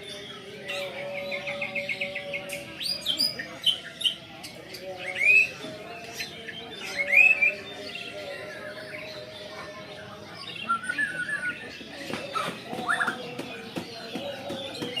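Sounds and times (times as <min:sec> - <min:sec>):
bird singing whistled notes: 0:04.8 - 0:09.3, 0:10.4 - 0:13.2.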